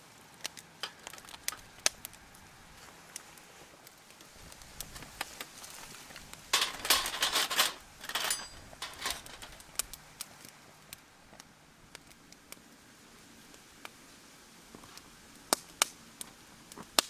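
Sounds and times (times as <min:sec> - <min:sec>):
campfire crackling and popping: 0:00.0 - 0:17.0
burst of clatter and rustling: 0:05.1 - 0:09.7.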